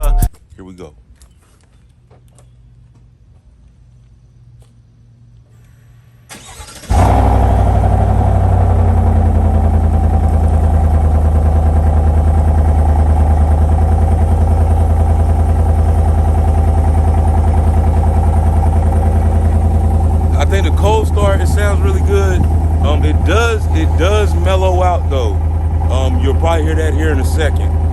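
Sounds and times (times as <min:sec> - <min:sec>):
truck engine cranking and idling: 0:05.3 - 0:27.9.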